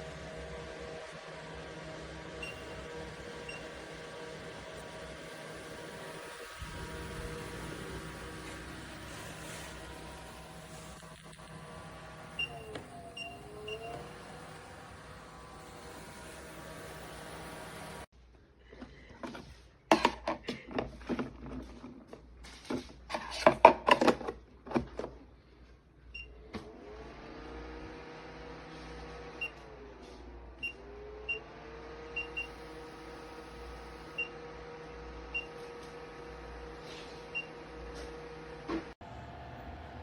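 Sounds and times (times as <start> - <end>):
fan motor humming: 0.0 - 18.1, 30.9 - 40.0.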